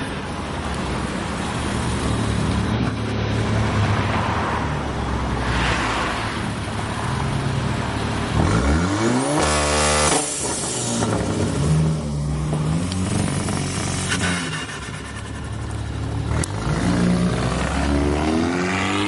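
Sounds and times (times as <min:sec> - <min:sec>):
car engine revving: 0:08.0 - 0:19.0.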